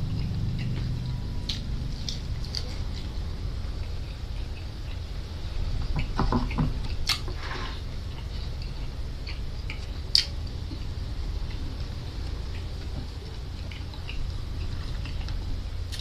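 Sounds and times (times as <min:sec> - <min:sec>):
steady low hum: 0:00.0 - 0:16.0
mouth clicks and smacks: 0:08.2 - 0:10.8.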